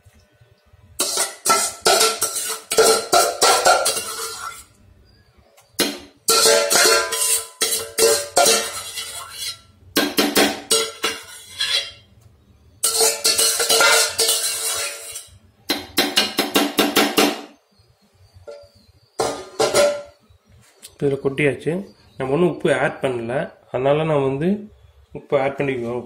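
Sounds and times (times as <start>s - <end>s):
metal spoon scraping steel pan: 1.0s - 4.7s, 6.3s - 9.7s, 10.5s - 12.1s, 12.8s - 15.4s.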